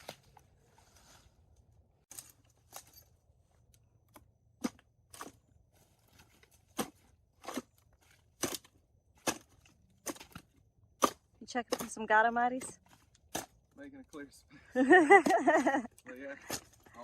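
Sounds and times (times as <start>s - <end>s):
palm fronds being cut: 6.0s - 13.6s, 15.2s - 17.0s.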